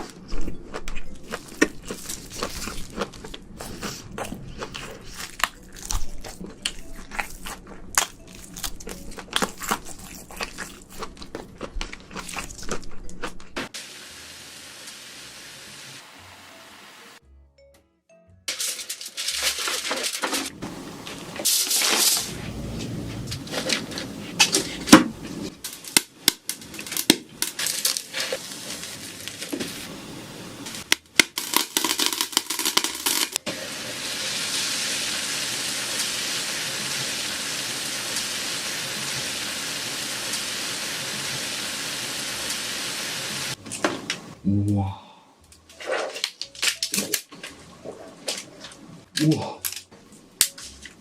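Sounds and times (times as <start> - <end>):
steady sizzling hiss: 13.6 - 17.2, 31.5 - 44.4
shrimp shells cracking: 30.9 - 33.4.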